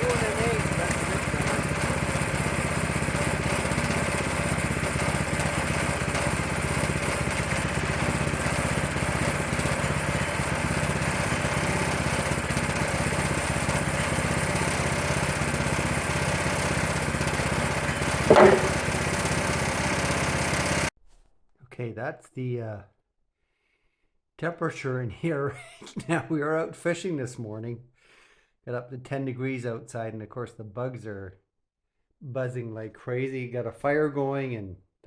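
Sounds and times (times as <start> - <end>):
small gasoline engine running: 0.0 - 20.9.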